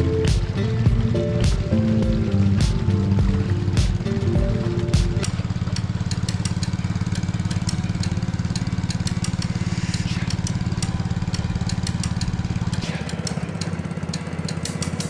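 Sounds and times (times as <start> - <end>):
background music: 0.0 - 5.4
boat engine running: 0.0 - 13.8.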